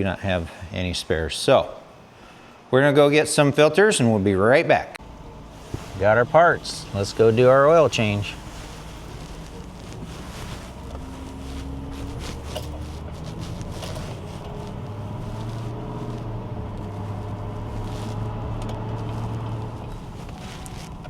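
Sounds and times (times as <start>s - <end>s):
road and wind noise: 5.0s - 21.0s
vehicle engine humming: 5.0s - 21.0s.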